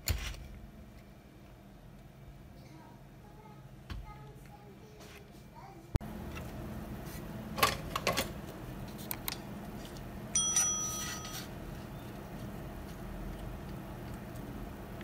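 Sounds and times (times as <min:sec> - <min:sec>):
steady low hum: 0:00.0 - 0:15.0
small metal part ringing: 0:10.4 - 0:11.5.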